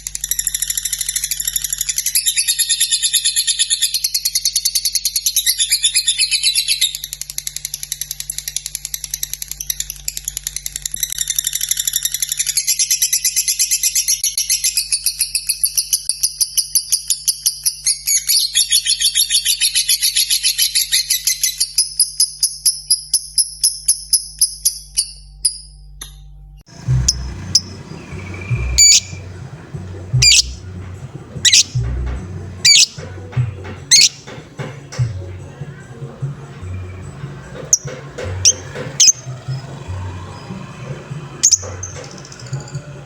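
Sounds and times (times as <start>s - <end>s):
low background hum: 21.7s - 43.0s
lovebird chattering trill: 26.7s - 33.1s, 33.9s - 34.3s, 36.8s - 39.6s, 41.4s - 42.6s
sharp bird chirps: 27.0s - 29.3s, 30.1s - 30.6s, 31.4s - 31.8s, 32.6s - 33.0s, 33.9s - 34.2s.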